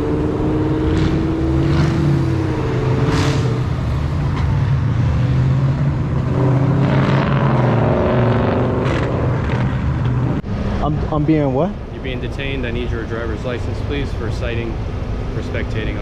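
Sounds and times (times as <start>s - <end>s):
car engine running: 11.4s - 16.0s.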